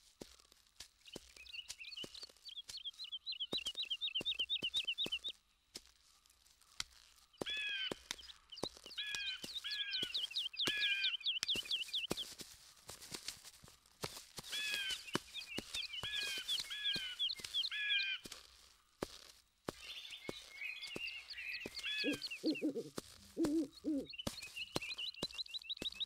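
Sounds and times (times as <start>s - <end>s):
high bird chirps: 1.0s - 5.4s, 7.3s - 12.4s, 14.4s - 18.4s, 19.7s - 26.0s
harsh drawn-out bird calls: 1.1s - 5.3s, 7.3s - 12.4s, 14.4s - 18.4s, 19.7s - 26.0s.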